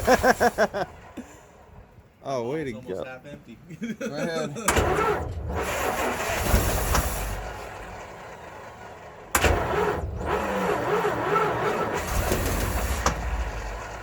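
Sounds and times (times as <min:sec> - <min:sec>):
starter cranking engine: 0:04.7 - 0:14.0.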